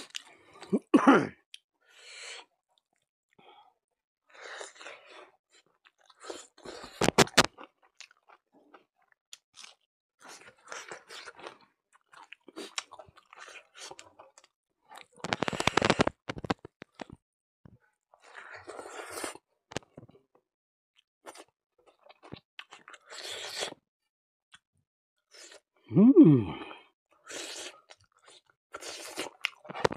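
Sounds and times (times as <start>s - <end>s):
wet chewing and crunching: 0.0s - 0.7s, 4.5s - 17.2s, 21.2s - 23.8s, 27.2s - 29.9s.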